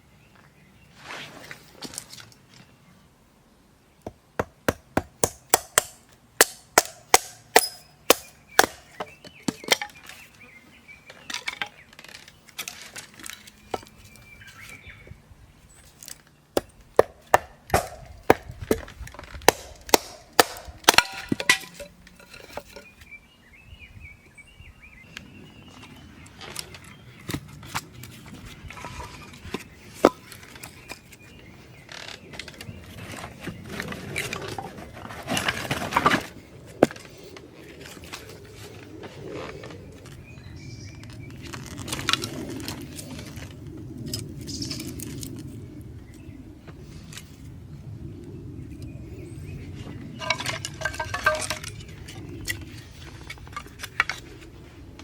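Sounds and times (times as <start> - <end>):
chopping wood: 4.0 - 9.9, 16.6 - 21.9.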